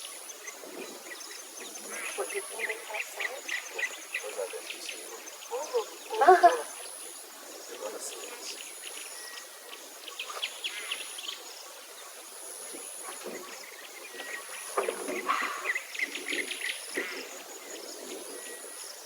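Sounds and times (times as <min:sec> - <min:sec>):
insects trilling: 0:00.0 - 0:11.7
birds chirping: 0:01.1 - 0:09.4.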